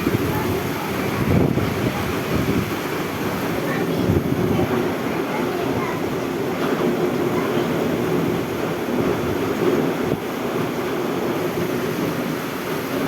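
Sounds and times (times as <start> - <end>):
rain: 0.0 - 13.0
wind: 0.0 - 13.0.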